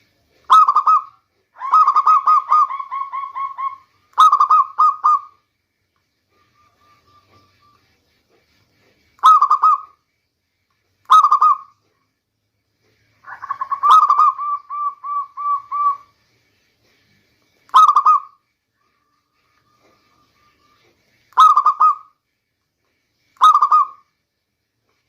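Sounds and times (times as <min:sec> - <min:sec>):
dove cooing: 0:00.5 - 0:05.4, 0:13.2 - 0:16.1, 0:17.7 - 0:18.4, 0:19.7 - 0:22.1, 0:23.4 - 0:24.0.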